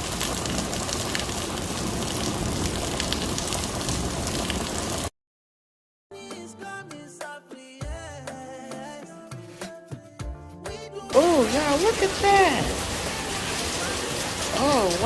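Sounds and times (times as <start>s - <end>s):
heavy rain pouring: 0.0s - 5.1s, 11.1s - 15.0s
drips and splashes: 11.2s - 15.0s.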